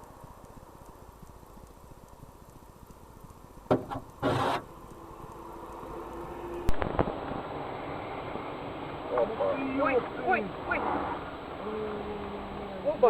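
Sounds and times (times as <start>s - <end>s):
engine and road noise: 0.0s - 13.0s
faint steady tone: 0.0s - 13.0s
sharp knocks: 3.7s - 4.6s.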